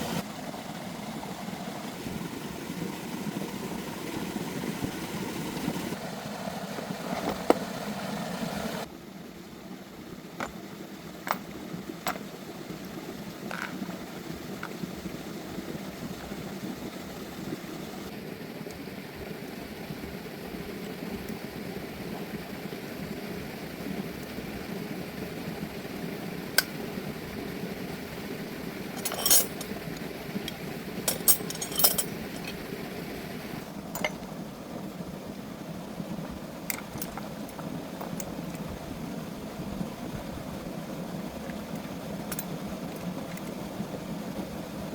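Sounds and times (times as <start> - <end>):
steady low hum: 0.0 - 44.9
metal tools clinking: 29.0 - 29.7, 31.1 - 32.6, 34.0 - 34.2.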